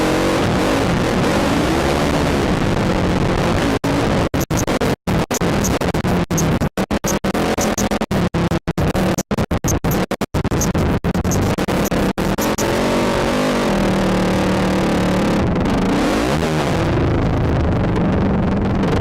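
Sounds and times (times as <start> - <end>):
atv engine running: 0.0 - 8.0, 9.0 - 18.1
high-pitched blips: 4.4 - 8.0, 9.1 - 12.8.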